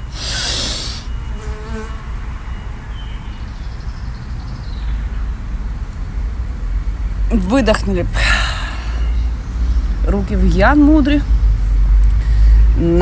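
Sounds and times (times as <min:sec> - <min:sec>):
sharp deep inhale: 0:00.0 - 0:01.2, 0:08.2 - 0:09.8, 0:12.2 - 0:12.8
steady low hum: 0:00.0 - 0:13.0.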